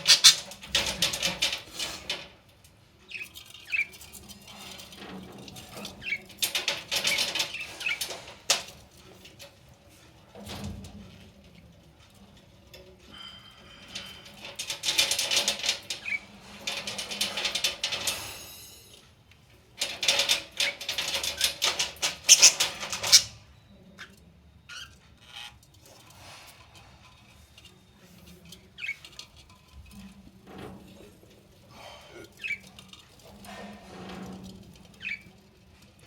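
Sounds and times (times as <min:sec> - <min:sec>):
budgies clicking: 0:00.0 - 0:00.6, 0:21.4 - 0:23.4, 0:32.4 - 0:32.6, 0:35.0 - 0:35.3.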